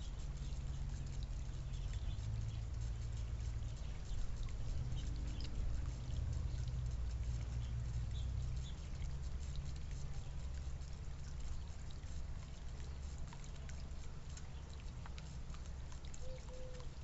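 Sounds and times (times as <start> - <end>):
birds pecking clicks: 0.0 - 17.0
steady low rumble: 0.0 - 17.0
faint bird chirps: 16.2 - 16.9.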